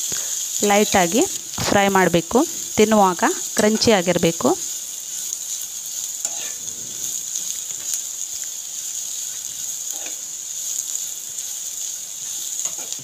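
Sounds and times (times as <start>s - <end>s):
vegetables sizzling in a pan: 0.0s - 13.0s
spatula scraping a pan: 5.0s - 8.1s, 9.0s - 11.5s, 12.2s - 13.0s.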